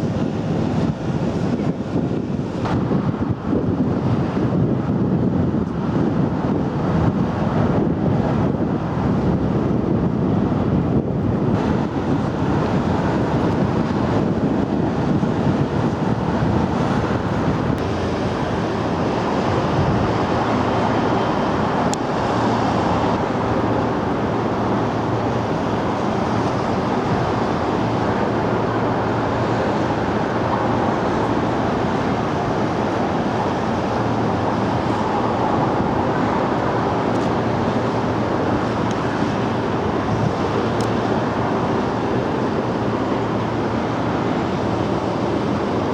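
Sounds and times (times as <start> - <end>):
wind on microphone: 0.0 - 45.9
rushing water: 10.4 - 45.9
boat engine running: 10.5 - 45.9.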